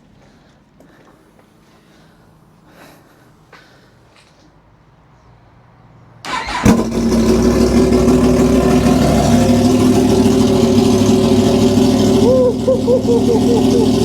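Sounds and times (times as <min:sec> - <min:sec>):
motorcycle engine starting and idling: 0:06.3 - 0:14.0.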